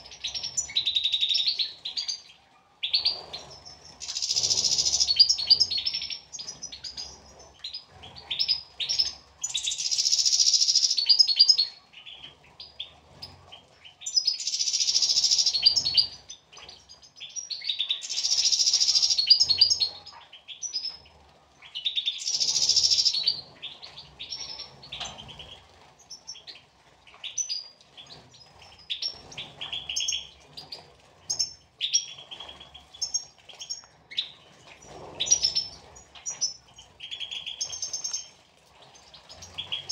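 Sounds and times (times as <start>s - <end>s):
goldfinches chirping: 0.0s - 21.0s, 21.6s - 26.6s, 27.2s - 39.9s.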